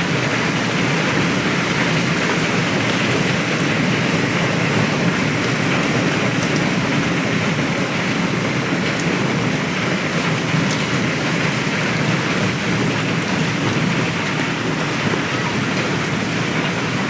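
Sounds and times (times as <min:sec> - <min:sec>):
hailstones ticking: 0:00.0 - 0:17.0
heavy hail and rain: 0:00.0 - 0:17.0.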